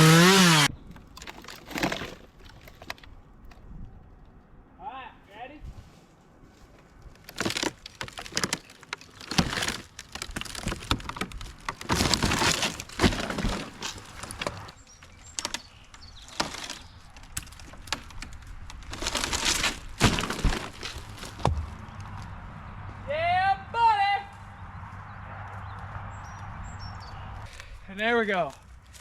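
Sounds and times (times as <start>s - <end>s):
wood cracking and splintering: 0.0s - 3.6s, 7.0s - 22.3s.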